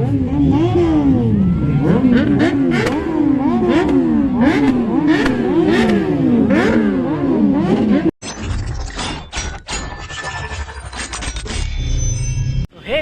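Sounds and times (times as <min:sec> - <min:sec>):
exhaust crack: 0:00.0 - 0:08.1
motorcycle engine revving: 0:00.0 - 0:08.2.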